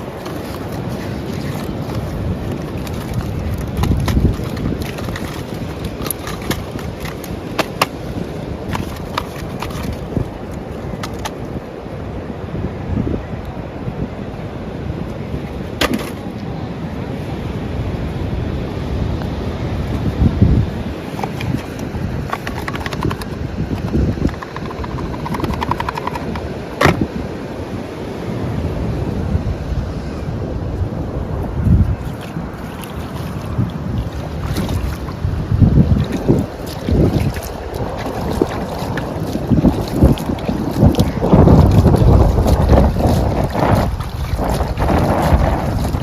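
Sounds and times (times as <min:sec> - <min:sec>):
wind buffeting microphone: 0:00.0 - 0:46.0
plastic toy vehicles rolling: 0:21.2 - 0:26.4
small rapid clicks: 0:22.3 - 0:26.4.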